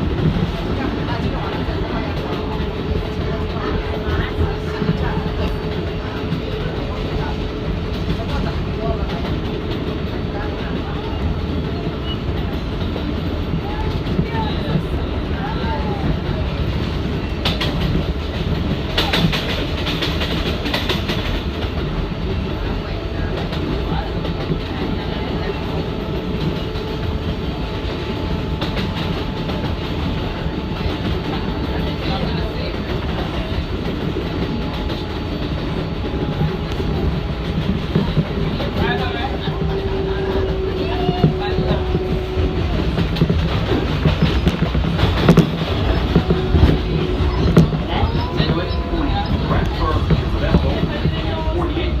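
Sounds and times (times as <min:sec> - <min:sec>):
subway train wheels rumbling: 0:00.0 - 0:52.0.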